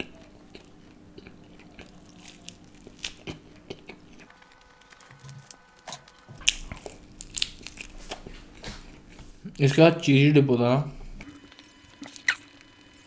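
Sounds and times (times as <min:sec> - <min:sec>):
person chewing crisp food: 0:00.0 - 0:09.4.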